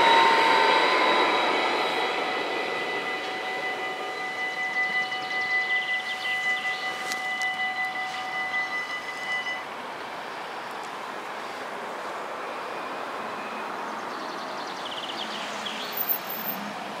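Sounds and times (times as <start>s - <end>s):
outdoor rumble: 0.0s - 8.9s
wind noise: 0.0s - 9.6s
train moving away: 0.0s - 17.0s.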